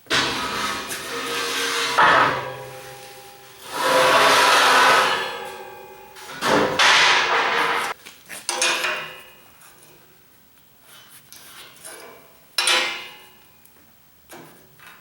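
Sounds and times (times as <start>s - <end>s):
steel scraping and clanging: 0.0s - 8.0s.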